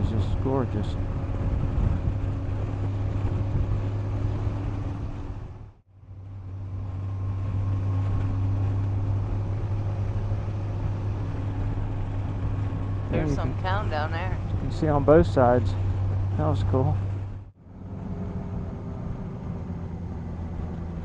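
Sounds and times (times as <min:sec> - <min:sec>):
motorcycle engine cruising: 0:00.0 - 0:21.0
wind rush: 0:00.6 - 0:05.7.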